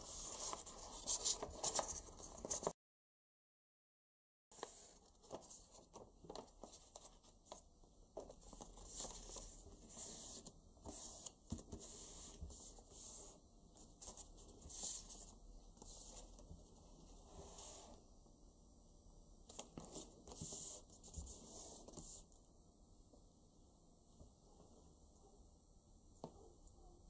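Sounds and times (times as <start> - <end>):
paper rustling and crinkling: 0.0 - 2.7, 8.2 - 12.8.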